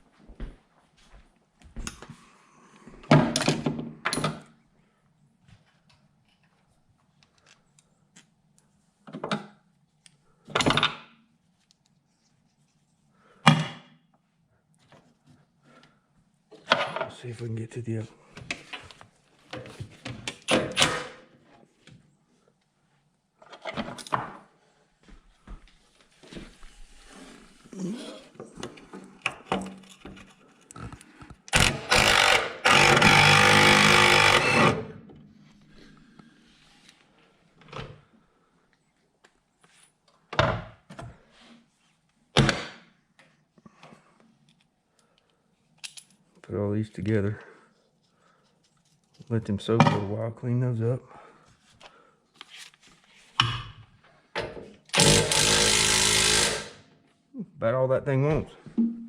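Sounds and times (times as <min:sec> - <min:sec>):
impact wrench running: 0:31.5 - 0:35.0, 0:55.0 - 0:56.8
tools clicking and knocking: 0:45.8 - 0:46.2.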